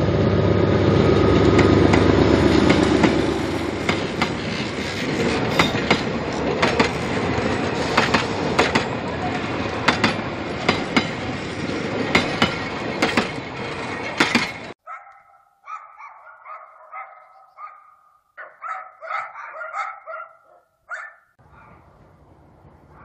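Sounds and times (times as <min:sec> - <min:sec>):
train wheels clicking over rail joints: 0:01.2 - 0:14.8
dog barking: 0:14.8 - 0:21.8.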